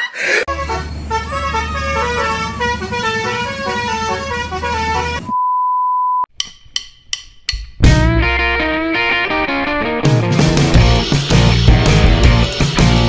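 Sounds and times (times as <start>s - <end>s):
bus horn playing melody: 0.5s - 5.4s.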